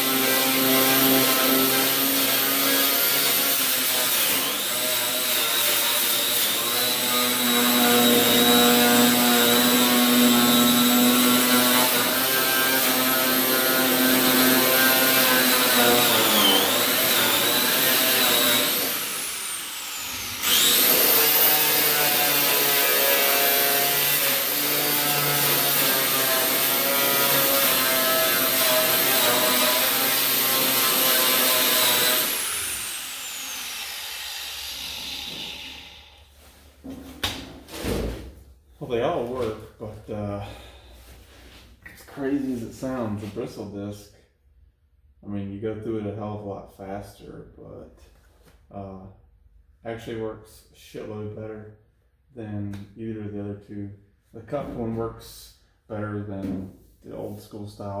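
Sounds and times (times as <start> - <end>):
angle grinder whining: 0.0 - 36.3.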